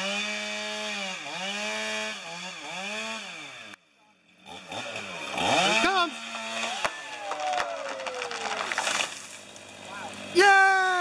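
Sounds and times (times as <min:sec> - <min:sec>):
chainsaw cutting wood: 0:00.0 - 0:10.5.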